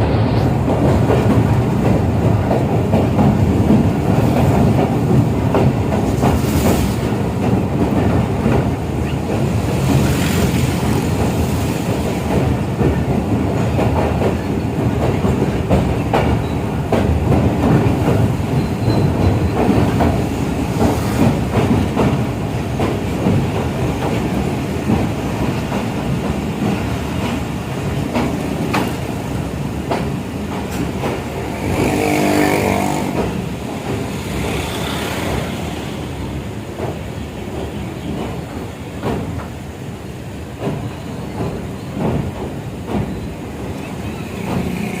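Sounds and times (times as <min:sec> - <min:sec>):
clicks and clatter of train: 0:00.0 - 0:45.0
train wheels rumbling on rails: 0:00.0 - 0:45.0.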